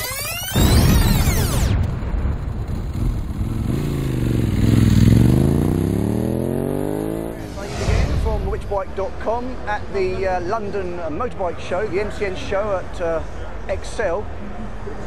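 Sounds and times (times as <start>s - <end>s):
motorcycle engine revving: 2.6s - 7.5s.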